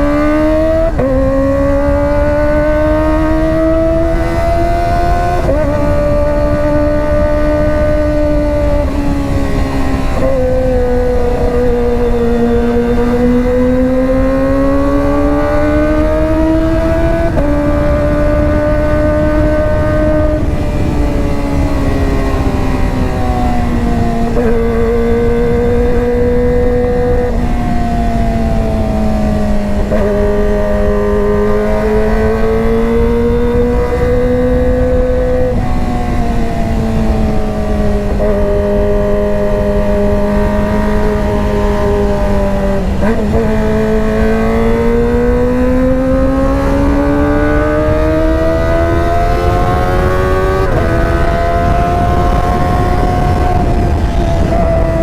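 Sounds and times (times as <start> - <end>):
motorcycle engine revving high: 0.0 - 55.0.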